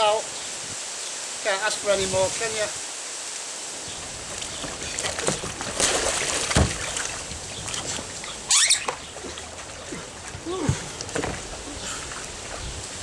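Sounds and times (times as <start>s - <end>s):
water splashing around kayak: 3.8s - 13.0s
dull thud: 4.4s - 8.2s, 8.8s - 11.6s.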